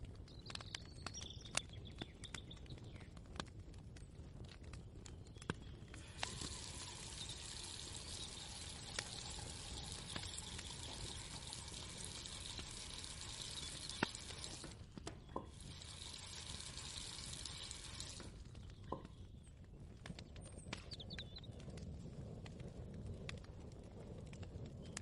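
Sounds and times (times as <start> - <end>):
water running from a tap: 6.0 - 14.8, 15.4 - 18.4.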